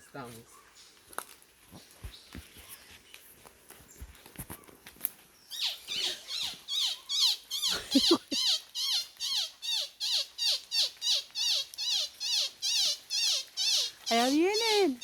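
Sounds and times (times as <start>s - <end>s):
chirping animal calls: 5.5s - 15.0s.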